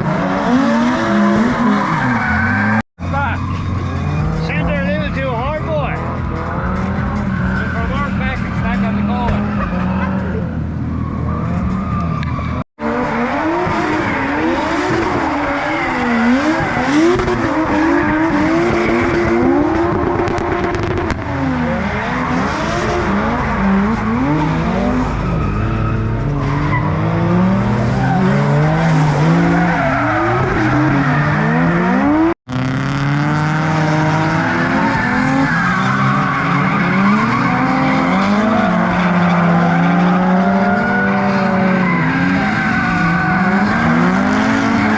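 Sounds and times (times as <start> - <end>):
car engines revving: 0.0 - 44.9
tyres squealing: 1.6 - 12.6.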